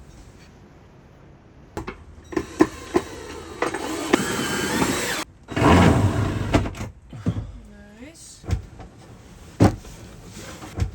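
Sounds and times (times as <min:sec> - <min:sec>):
small motor whirring: 0:02.3 - 0:06.0.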